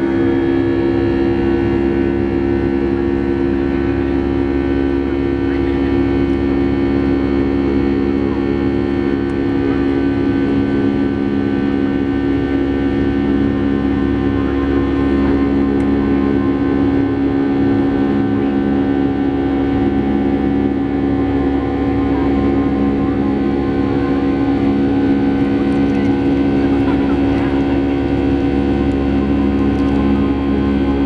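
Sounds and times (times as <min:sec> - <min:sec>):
jet engines droning in cabin: 0:00.0 - 0:31.0.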